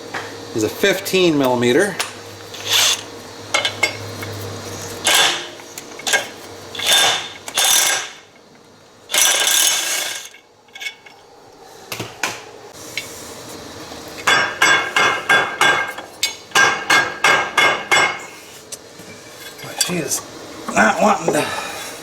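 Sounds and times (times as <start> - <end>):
metal tools rattling and scraping: 2.5 - 4.0, 5.0 - 8.4, 9.1 - 11.2
ratchet wrench clicking: 2.6 - 3.1, 6.8 - 8.2, 9.1 - 10.9.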